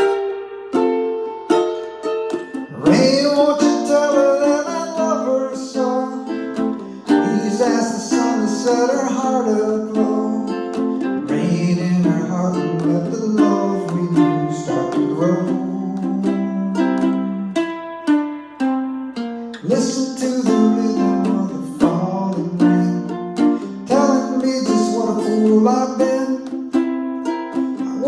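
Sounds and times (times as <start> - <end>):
ukulele strumming: 0.0 - 28.0
voices singing: 2.6 - 17.2, 19.6 - 26.8.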